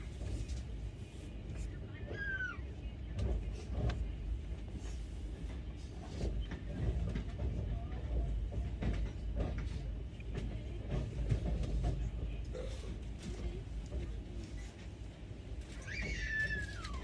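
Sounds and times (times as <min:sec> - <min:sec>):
train rumbling on rails: 0:00.0 - 0:17.0
train wheels clicking and knocking: 0:05.5 - 0:12.3.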